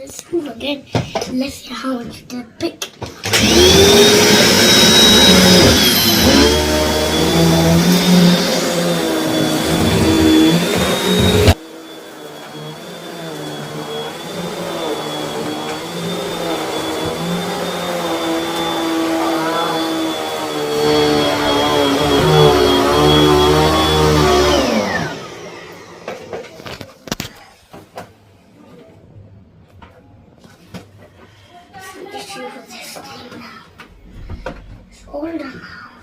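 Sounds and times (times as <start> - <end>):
vacuum cleaner motor whine: 3.2 - 27.3.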